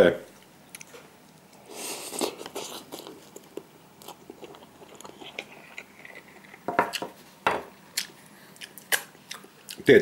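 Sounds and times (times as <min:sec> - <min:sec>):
person chewing noodles: 0:01.6 - 0:07.0, 0:07.9 - 0:09.9.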